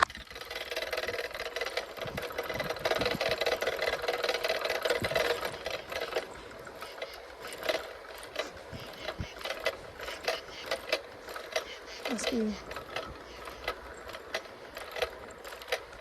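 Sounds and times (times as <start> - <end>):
bicycle freewheel whirring: 0.0 - 16.0.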